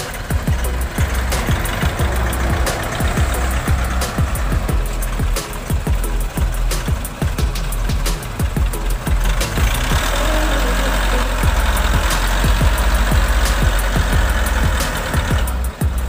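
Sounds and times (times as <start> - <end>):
machine engine running: 0.0 - 15.8
children's music with thumping beat: 0.0 - 16.0
dense rushing noise: 0.0 - 16.0.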